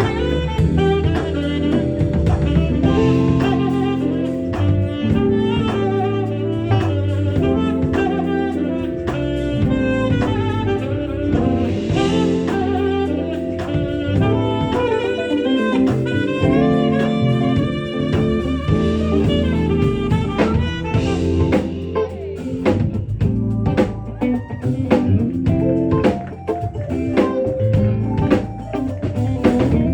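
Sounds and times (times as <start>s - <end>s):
drum kit beat: 0.0s - 29.9s
saxophone melody: 0.0s - 29.9s.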